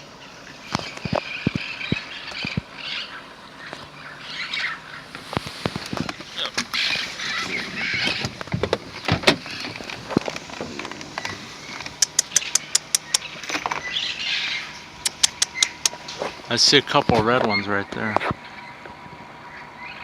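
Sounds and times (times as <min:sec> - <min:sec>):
parrots squawking: 0:00.8 - 0:05.1, 0:06.0 - 0:08.4, 0:09.4 - 0:16.1
sharp clicks: 0:09.8 - 0:13.6, 0:15.0 - 0:16.2.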